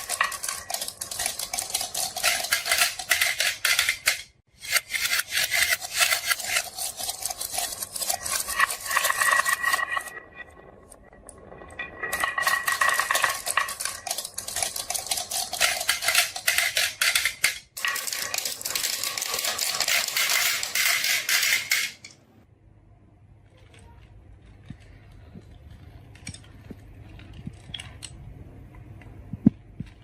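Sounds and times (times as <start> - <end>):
marbles clattering down track: 0.0 - 22.2.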